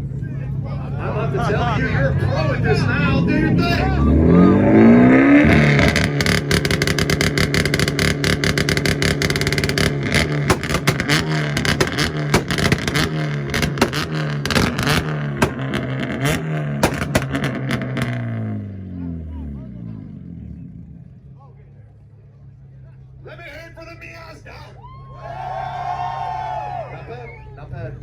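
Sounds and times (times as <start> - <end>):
car engine on rev limiter: 2.8 - 21.2
exhaust cracks and pops: 5.6 - 18.4.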